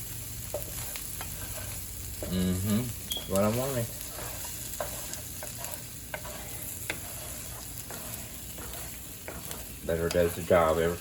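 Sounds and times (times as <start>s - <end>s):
onions sizzling in a pan: 0.0s - 11.0s.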